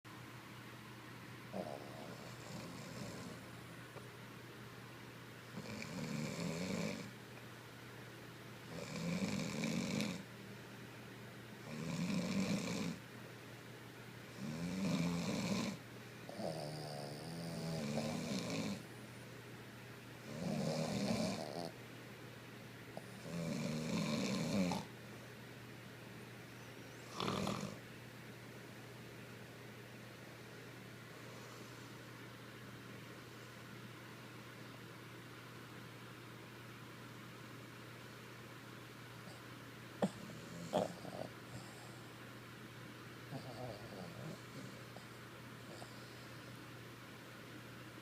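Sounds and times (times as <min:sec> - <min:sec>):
dog snoring: 0:01.5 - 0:03.7, 0:05.4 - 0:07.2, 0:08.6 - 0:10.3, 0:11.6 - 0:13.0, 0:14.3 - 0:18.8, 0:20.2 - 0:21.8, 0:23.0 - 0:24.9, 0:26.9 - 0:27.8, 0:40.0 - 0:42.2, 0:43.3 - 0:46.5.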